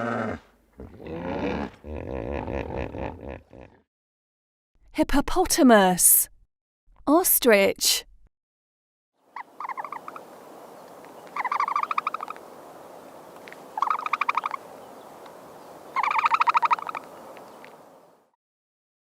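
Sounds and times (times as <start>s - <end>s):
ostrich trilling calls: 9.3s - 12.4s, 13.6s - 17.7s.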